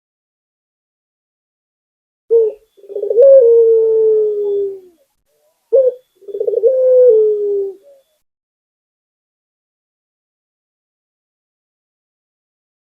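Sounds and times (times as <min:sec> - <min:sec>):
dove cooing: 0:02.3 - 0:05.0, 0:05.7 - 0:08.1.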